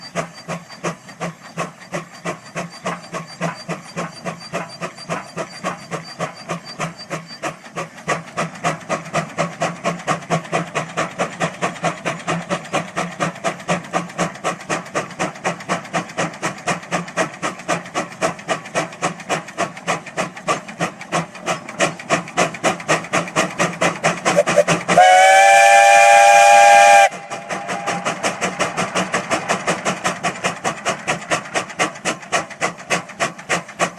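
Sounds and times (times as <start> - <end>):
steam engine rhythmic chuffing: 0.0 - 33.9
steam whistle chord: 24.3 - 28.1.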